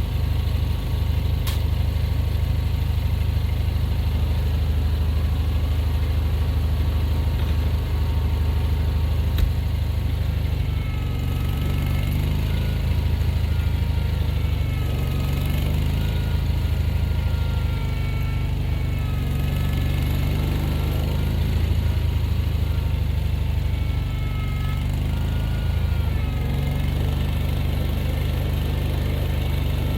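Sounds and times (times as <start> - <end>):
engine humming: 0.0 - 29.9
sharp click: 1.4 - 1.6
faint wavering whine: 3.0 - 29.9.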